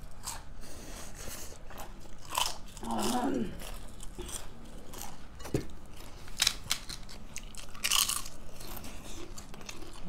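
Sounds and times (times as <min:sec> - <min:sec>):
person chewing with crunches: 0:00.0 - 0:10.0.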